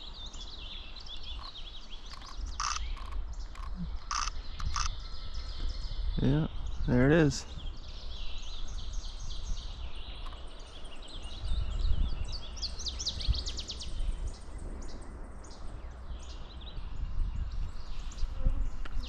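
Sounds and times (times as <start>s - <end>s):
songbirds singing: 0.0s - 19.0s
fast bird trill: 1.2s - 3.2s, 3.9s - 5.0s
low microphone rumble: 10.8s - 19.0s.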